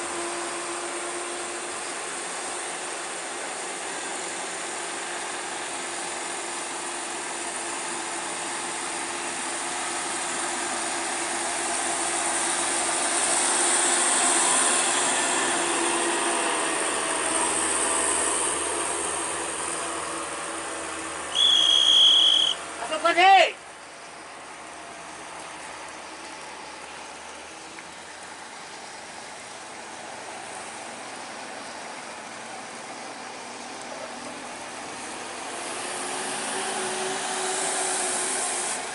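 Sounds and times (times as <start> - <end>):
heavy truck engine: 0.0 - 38.9
road noise: 0.0 - 38.9.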